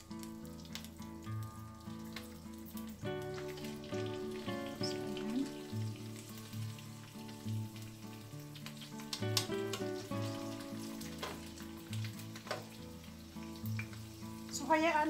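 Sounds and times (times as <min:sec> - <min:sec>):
squid frying in hot oil: 0:00.0 - 0:15.0
spatula clicking against pan: 0:08.6 - 0:10.0.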